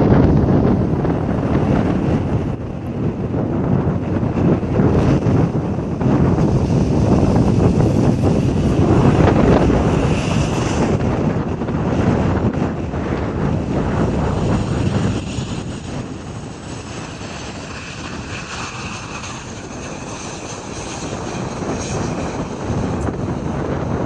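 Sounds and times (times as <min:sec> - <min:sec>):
jet engines roaring: 0:00.0 - 0:24.0
thin whine: 0:00.0 - 0:24.0
wind buffeting microphone: 0:00.0 - 0:24.0.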